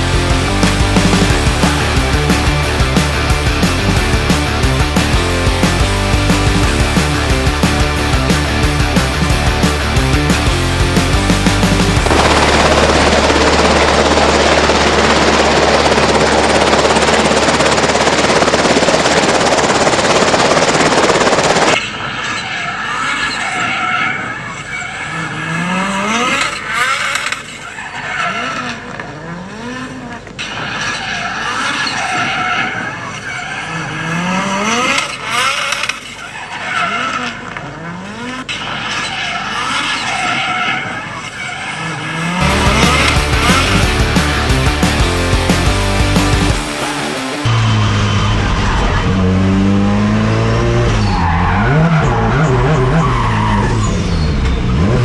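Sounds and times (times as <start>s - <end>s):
dense rush of noise: 0.0s - 21.8s, 42.4s - 49.8s
car engine revving: 0.0s - 55.0s.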